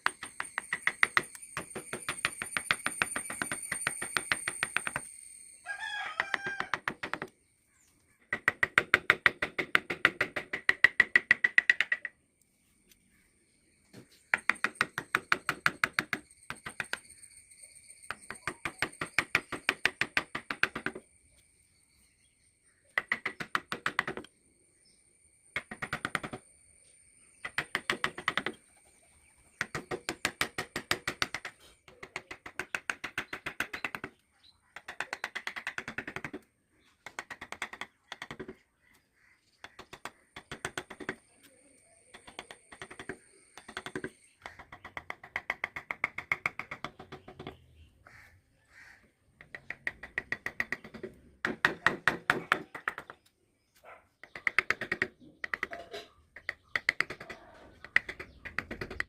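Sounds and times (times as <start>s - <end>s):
rapid tapping on wood: 0.0s - 5.1s, 6.2s - 7.3s, 8.3s - 12.1s, 14.2s - 17.1s, 18.1s - 21.0s, 23.0s - 24.3s, 25.6s - 26.4s, 27.4s - 28.6s, 29.6s - 34.2s, 34.8s - 36.4s, 37.0s - 38.6s, 39.6s - 41.2s, 42.1s - 47.6s, 49.4s - 53.2s, 54.2s - 55.8s, 56.4s - 59.0s.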